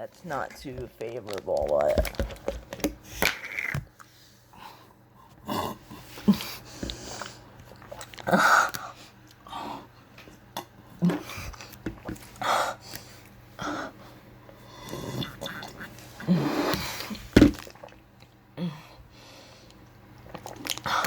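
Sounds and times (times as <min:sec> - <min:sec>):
person sipping and swallowing: 0:06.3 - 0:09.4, 0:10.4 - 0:12.4, 0:14.8 - 0:18.3, 0:20.2 - 0:21.0.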